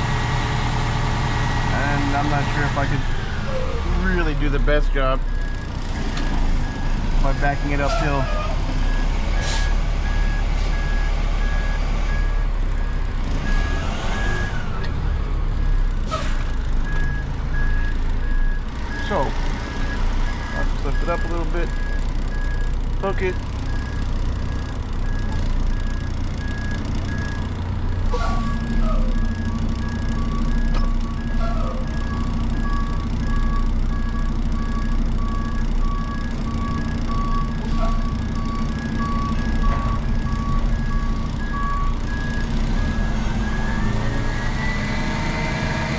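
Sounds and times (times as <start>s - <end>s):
truck engine rumble: 0.0s - 45.9s
truck backup alarm beeping: 1.7s - 45.9s.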